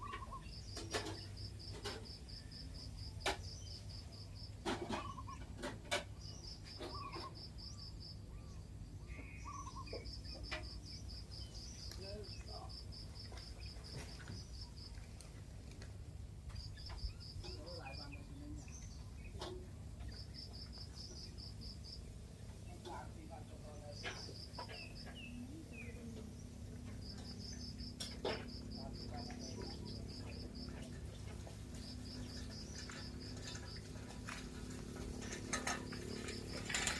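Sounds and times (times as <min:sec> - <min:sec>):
faint bird chirps: 0:00.0 - 0:05.5, 0:06.2 - 0:14.8
insect chirping: 0:06.1 - 0:15.0, 0:23.6 - 0:36.9.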